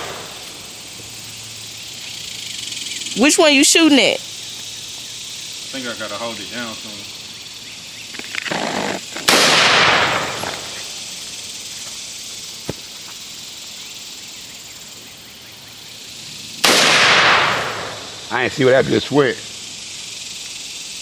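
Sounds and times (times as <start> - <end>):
insects hissing: 0.0 - 21.0
gunshots with echo: 9.3 - 10.4.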